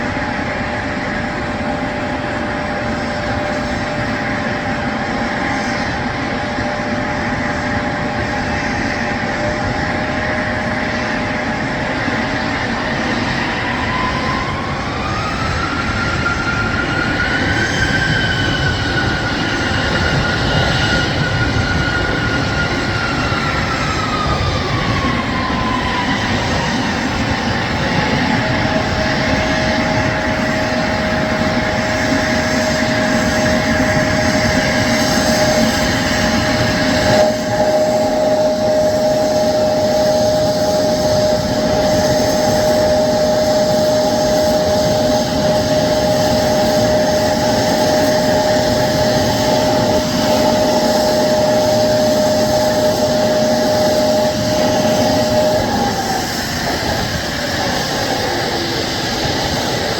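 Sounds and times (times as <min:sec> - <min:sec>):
high engine whine: 0:00.0 - 0:59.9
jet engines idling roar: 0:00.0 - 0:59.9.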